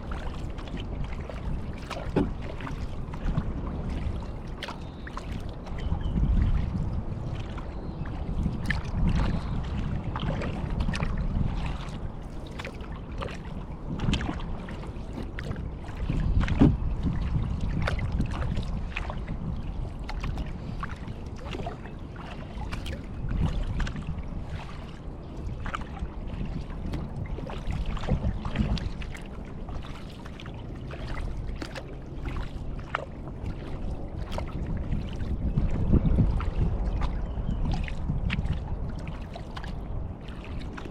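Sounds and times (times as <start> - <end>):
water dripping and trickling: 0.0 - 2.8
paddle splashing in water: 0.0 - 40.9.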